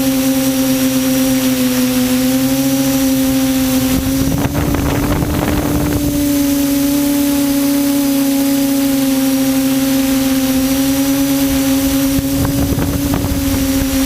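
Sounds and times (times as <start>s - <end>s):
quadcopter propellers droning: 0.0s - 14.0s
wind noise: 1.9s - 8.4s, 9.6s - 14.0s.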